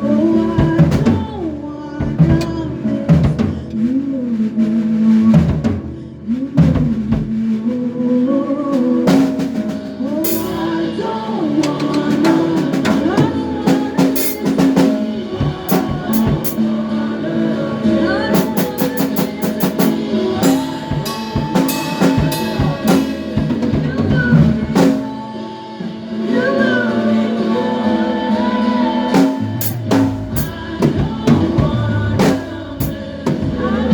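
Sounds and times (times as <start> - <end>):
live band playing: 0.0 - 33.9
bass drum and snare hits: 11.7 - 16.7, 29.2 - 33.9.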